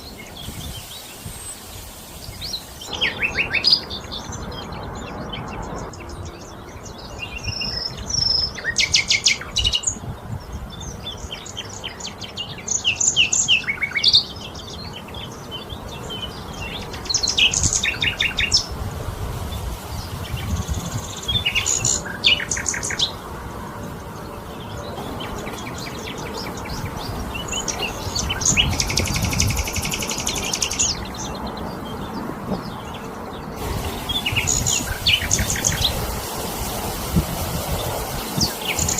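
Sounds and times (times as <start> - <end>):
long buzzy bird trill: 0.0 - 9.5, 33.0 - 38.9
songbirds chirping and trilling: 0.0 - 38.9.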